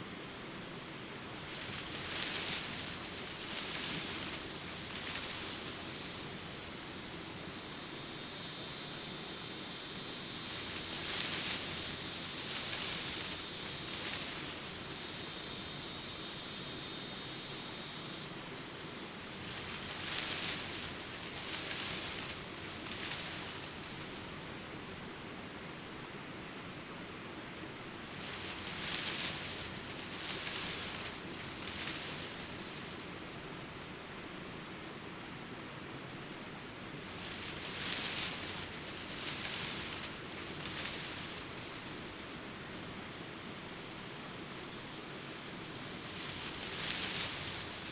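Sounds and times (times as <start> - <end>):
crickets and insects chirping: 0.0 - 47.9.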